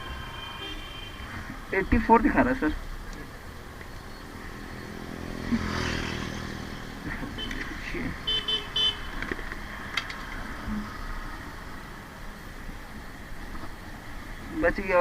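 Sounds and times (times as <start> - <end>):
vehicle engine passing by: 4.3 - 8.1.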